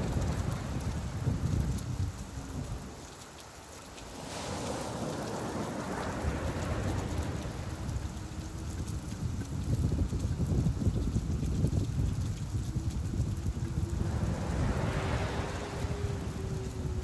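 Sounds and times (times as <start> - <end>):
steady rain hiss: 0.0 - 17.0
low rumble: 8.0 - 17.0.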